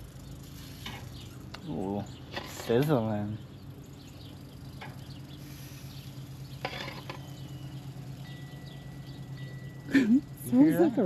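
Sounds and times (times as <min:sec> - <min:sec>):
steady low hum: 0:00.0 - 0:11.0
hot dogs sizzling on grill: 0:05.4 - 0:08.2.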